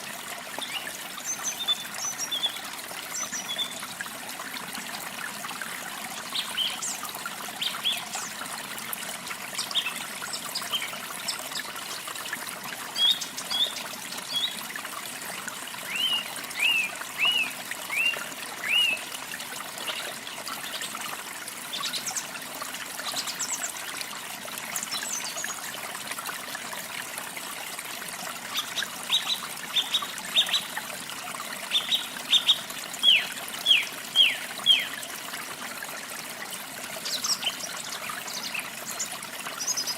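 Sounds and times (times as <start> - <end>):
trickle of running water: 0.0 - 39.9
small songbirds chirping: 12.9 - 14.6, 15.8 - 19.0, 31.7 - 35.0.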